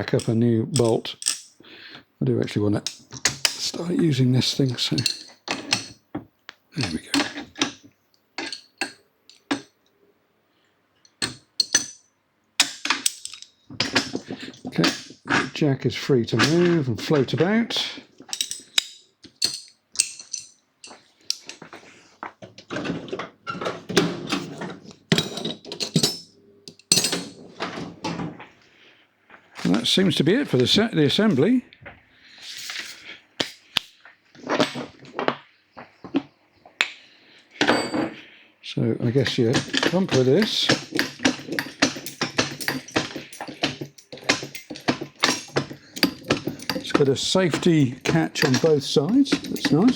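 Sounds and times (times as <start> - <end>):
metallic clinks and knocks: 0.0 - 1.6, 2.8 - 6.0, 6.8 - 9.8, 11.1 - 15.4, 18.2 - 21.7, 24.3 - 28.2, 37.6 - 38.2, 39.0 - 49.9.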